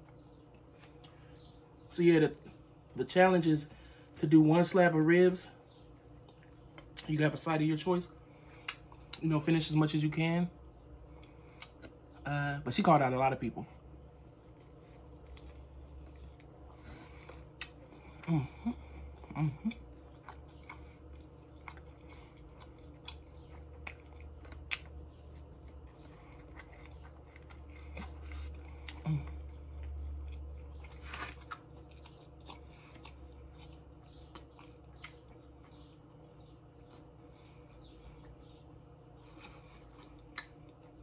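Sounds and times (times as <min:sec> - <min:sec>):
wet chewing: 0:05.6 - 0:07.1, 0:14.2 - 0:18.4, 0:19.0 - 0:41.0
lip smacks and clicks: 0:33.7 - 0:37.2.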